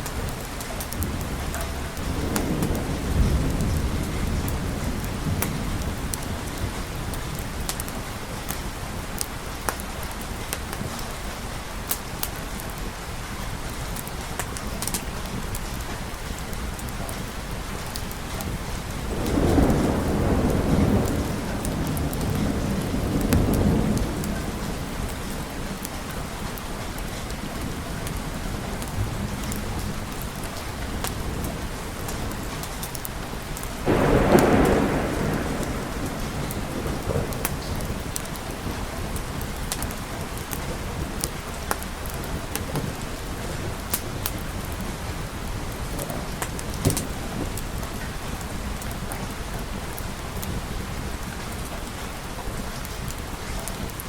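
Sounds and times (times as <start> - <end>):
steady rain: 0.0 - 54.0
thunder rolling: 0.1 - 8.4, 18.6 - 32.8, 33.7 - 49.5.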